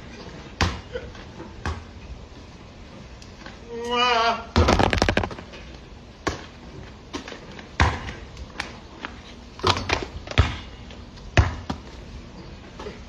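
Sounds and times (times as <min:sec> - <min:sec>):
basketball bouncing: 0:04.6 - 0:05.6.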